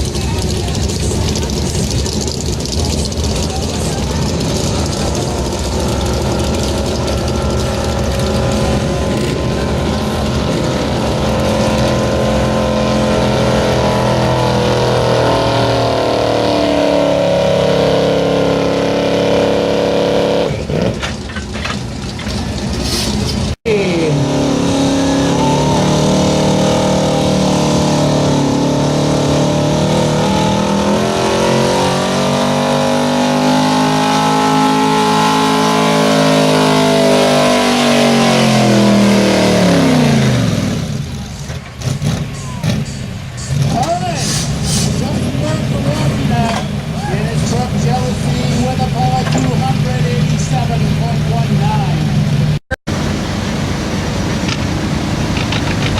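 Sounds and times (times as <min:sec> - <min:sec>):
tractor engine running under load: 0:00.0 - 0:14.9, 0:52.2 - 0:55.9.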